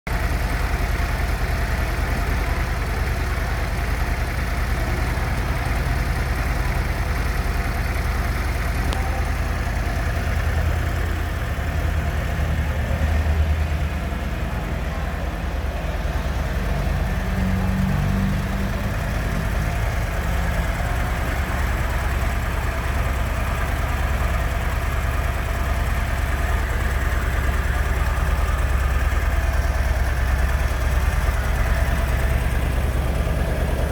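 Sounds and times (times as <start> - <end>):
motorcycle engine idling: 0.1 - 33.9.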